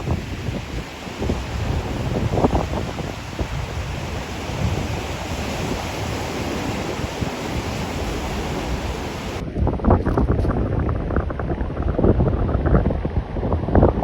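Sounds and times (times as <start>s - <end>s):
surf washing on beach: 0.0s - 9.4s
wind buffeting microphone: 0.0s - 14.0s.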